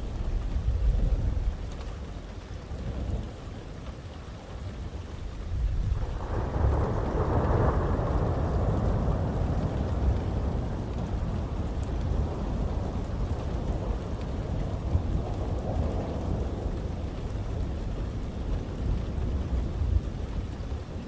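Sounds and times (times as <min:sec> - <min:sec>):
heavy rain: 0:00.0 - 0:21.0
thunder rolling: 0:05.5 - 0:21.0.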